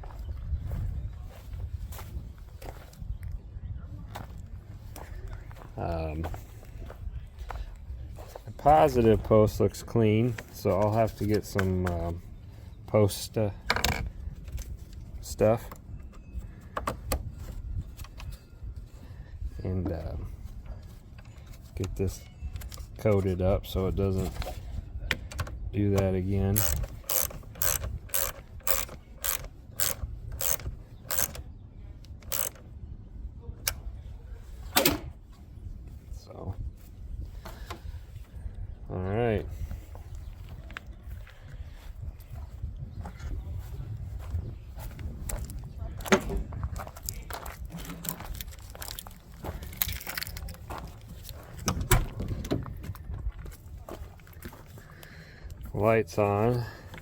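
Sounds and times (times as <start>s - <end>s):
handling knocks and clicks: 10.2s - 12.3s, 24.2s - 32.7s, 44.8s - 54.8s
ratchet wrench clicking: 26.6s - 31.4s, 32.2s - 32.6s.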